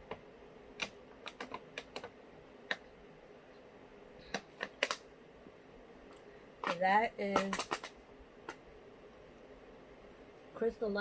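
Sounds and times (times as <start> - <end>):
objects clicking and tapping: 0.8 - 2.9, 4.2 - 5.0, 6.1 - 8.6.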